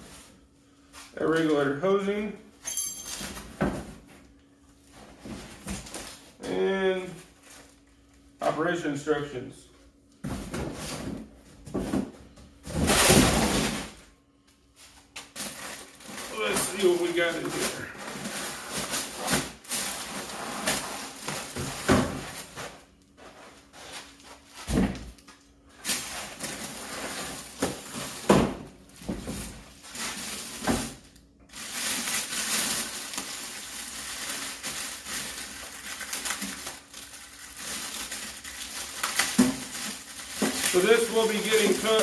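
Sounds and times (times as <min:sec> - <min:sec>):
packing material rustling: 0:14.8 - 0:24.7, 0:29.3 - 0:42.0.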